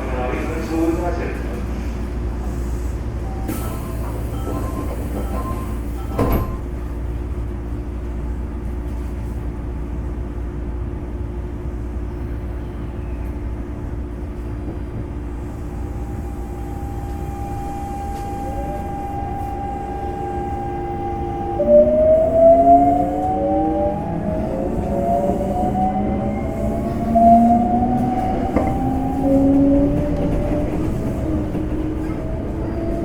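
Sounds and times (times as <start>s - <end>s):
sliding doors shutting: 3.4s - 6.8s, 20.9s - 33.0s
train motor rising whine: 15.6s - 33.0s
steady high tone: 15.8s - 27.6s.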